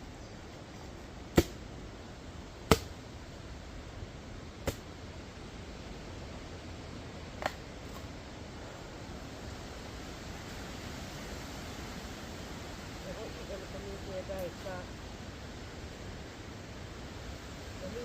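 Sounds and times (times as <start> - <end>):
steady background hiss: 0.0 - 18.0
machete chopping coconuts: 1.3 - 1.6, 2.7 - 3.0, 4.6 - 4.8.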